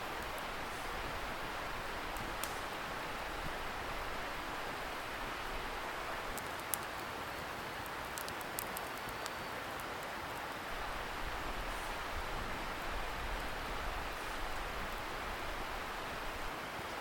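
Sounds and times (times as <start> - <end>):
bonfire crackling: 0.0 - 16.4
distant river hiss: 0.0 - 17.0
fire pops and snaps: 2.1 - 2.8, 6.2 - 10.1.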